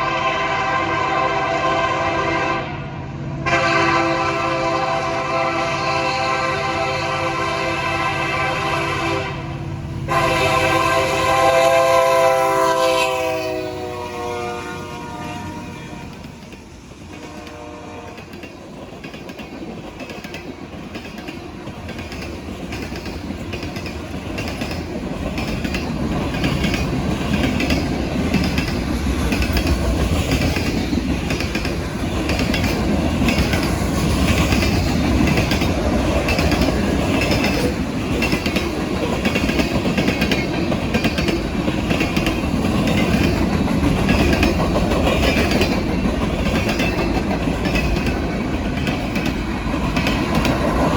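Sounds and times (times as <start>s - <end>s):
diesel train rumble: 0.0s - 50.9s
train wheels clacking on rail joints: 15.9s - 50.9s.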